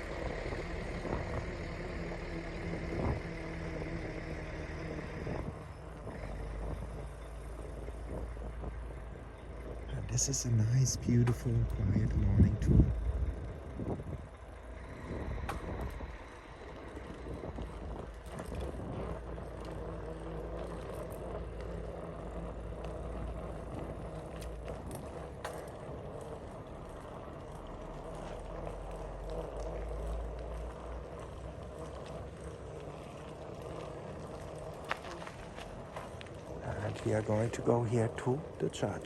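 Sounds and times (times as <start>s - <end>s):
bicycle rolling on road: 0.0s - 39.0s
wind noise: 5.2s - 21.3s
bicycle clicks and rattles: 10.6s - 39.0s.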